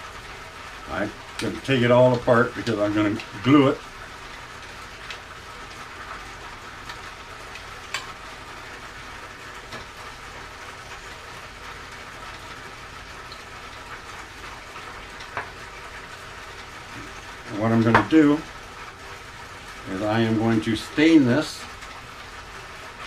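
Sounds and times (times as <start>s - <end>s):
steady background hiss: 0.0s - 23.0s
faint clicks and taps: 15.2s - 15.6s.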